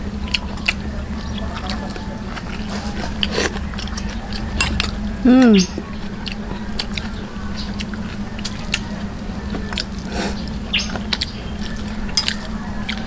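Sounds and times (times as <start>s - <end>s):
low hum: 0.0s - 13.0s
wet chewing and lip smacks: 0.2s - 5.0s, 6.0s - 13.0s.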